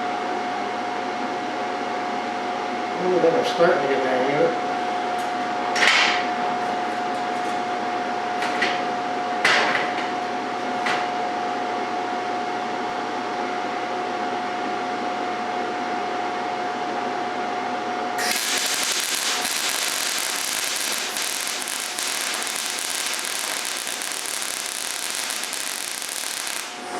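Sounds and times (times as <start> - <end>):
welding arc crackling hiss: 18.2 - 26.9
welding machine hum: 18.2 - 26.9.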